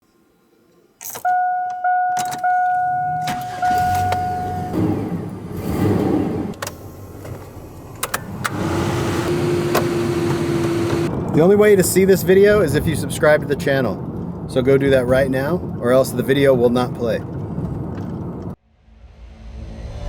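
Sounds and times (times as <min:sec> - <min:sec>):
engine rumbling: 0:01.1 - 0:18.6
electronic chime tones: 0:01.2 - 0:04.9
steady tone: 0:01.3 - 0:05.6.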